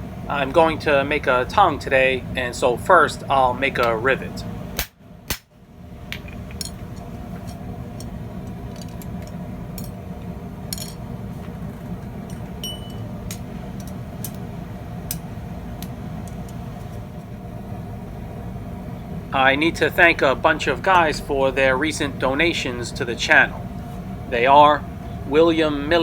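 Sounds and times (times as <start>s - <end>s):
gas forge burner roaring: 0.0s - 26.0s
light metallic clinks: 12.2s - 14.4s.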